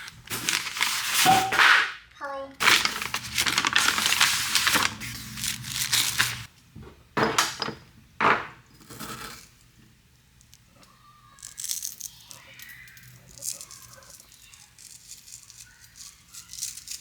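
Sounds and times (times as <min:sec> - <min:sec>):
food packaging crinkling: 0:00.0 - 0:01.7, 0:02.6 - 0:06.5
packaging ripping: 0:00.0 - 0:01.8, 0:02.6 - 0:06.5.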